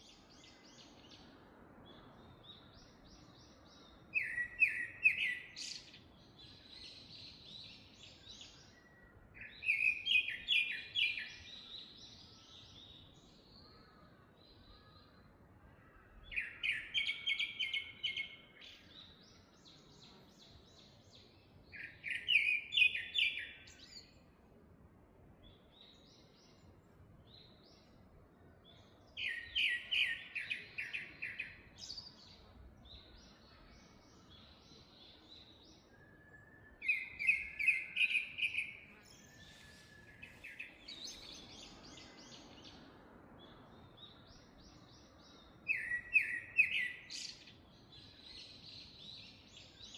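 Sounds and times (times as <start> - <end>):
faint high bird calls: 8.0 - 20.9, 28.7 - 42.9.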